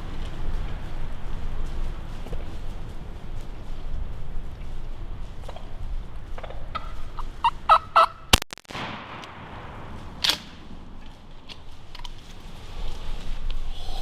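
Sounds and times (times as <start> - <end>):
wind rumbling on microphone: 0.0 - 14.0
turkey gobbling: 6.4 - 8.3
shotgun blast: 8.4 - 11.0.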